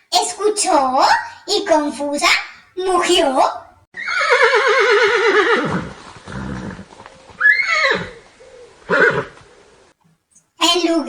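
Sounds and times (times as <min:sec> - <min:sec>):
horse whinnying: 0:04.0 - 0:09.4.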